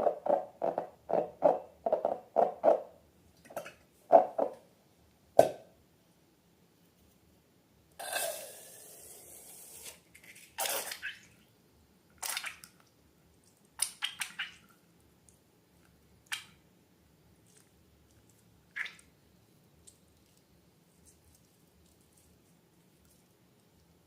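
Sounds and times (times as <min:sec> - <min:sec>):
wet slime squishes: 0:10.1 - 0:11.4, 0:12.2 - 0:16.6, 0:17.4 - 0:19.2.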